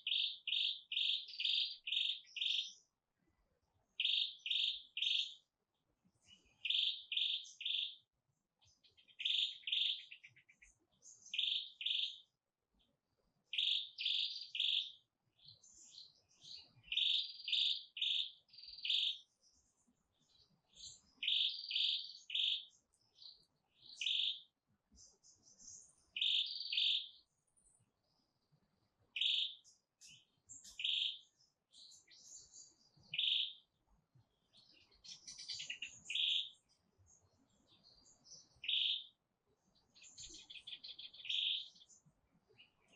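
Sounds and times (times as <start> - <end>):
rapid bird trill: 0.0 - 2.8, 4.0 - 5.4, 6.6 - 8.0, 8.9 - 12.3, 13.5 - 19.3, 20.8 - 24.5, 26.1 - 27.2, 29.2 - 33.7, 34.8 - 36.7, 37.7 - 39.2, 40.0 - 42.0
songbird chirping: 0.0 - 42.9.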